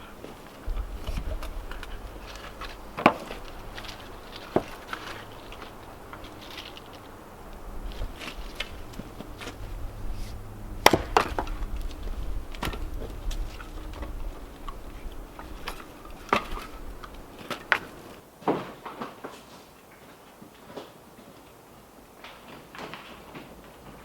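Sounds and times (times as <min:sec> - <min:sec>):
low rumble: 0:00.0 - 0:18.2
wooden knocks and clatters: 0:00.0 - 0:19.2.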